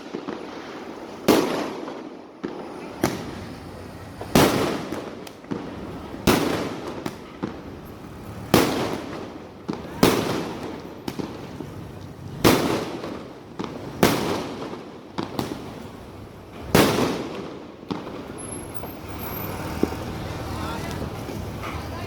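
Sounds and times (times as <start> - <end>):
fireworks loud bangs: 0.0 - 22.0
fireworks small pops: 4.3 - 20.2.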